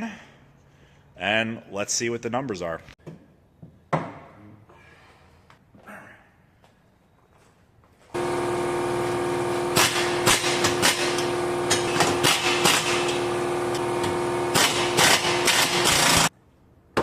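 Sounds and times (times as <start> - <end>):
impact wrench hammering: 8.2 - 16.3.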